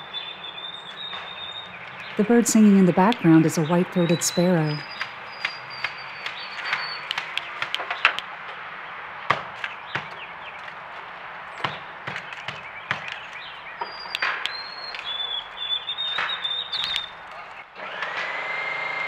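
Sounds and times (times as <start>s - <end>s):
sparrow whistling song: 0.0s - 2.2s, 3.4s - 8.2s, 11.5s - 17.2s
sharp taps and knocks: 4.9s - 8.6s, 9.3s - 17.2s.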